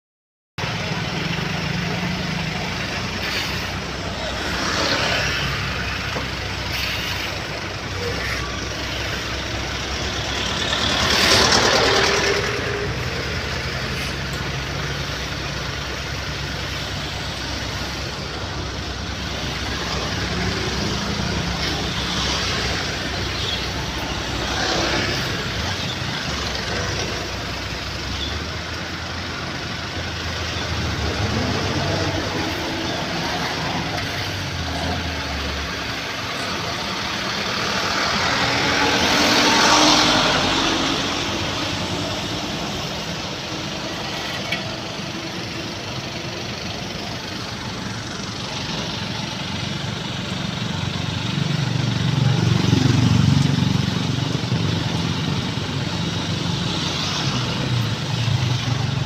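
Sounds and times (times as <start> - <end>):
diesel truck engines running: 0.6 - 59.0
hissing noise: 1.4 - 28.0.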